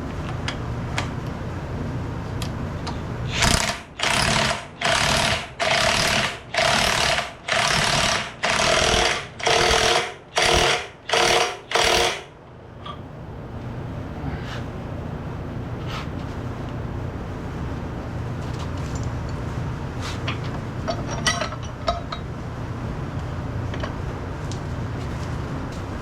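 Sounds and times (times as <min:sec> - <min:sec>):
impact wrench hammering: 0:03.4 - 0:12.3.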